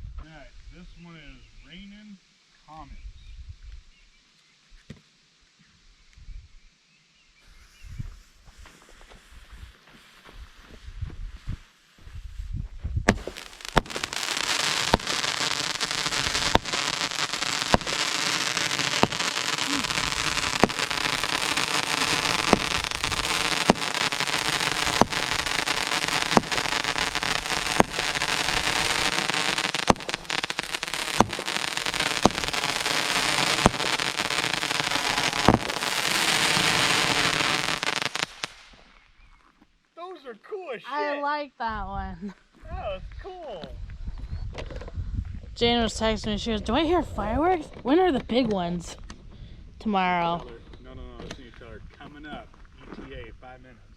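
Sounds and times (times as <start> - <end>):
firework crackling: 8.2 - 12.3, 13.0 - 39.0
firework popping: 12.9 - 39.1.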